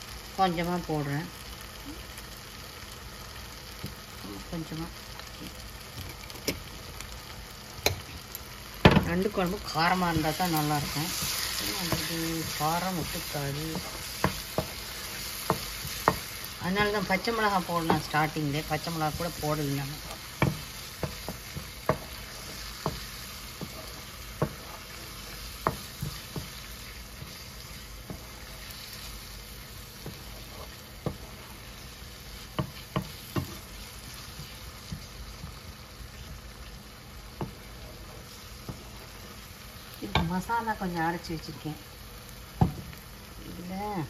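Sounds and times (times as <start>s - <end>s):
masala sizzling in a pan: 0.0s - 44.0s
spatula knocking and scraping pan: 8.8s - 40.8s, 42.6s - 43.0s.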